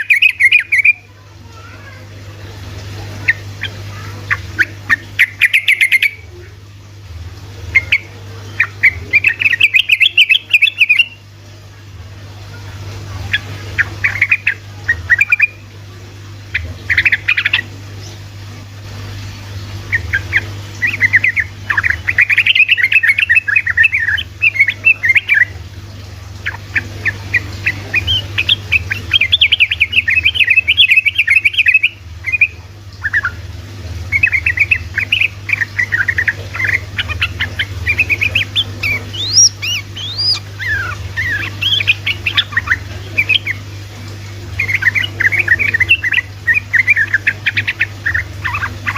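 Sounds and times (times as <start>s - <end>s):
bird singing rapid bubbly notes: 0.0s - 48.9s
steady low hum: 0.0s - 48.9s.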